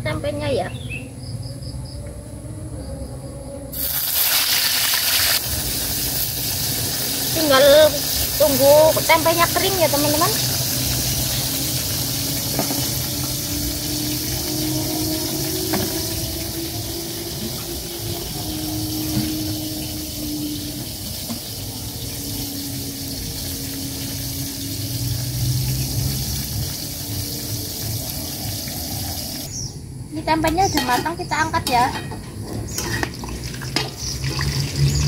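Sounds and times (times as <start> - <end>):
low droning hum: 0.0 - 4.1, 5.4 - 28.2
food deep-frying in oil: 3.7 - 29.6, 32.6 - 35.0.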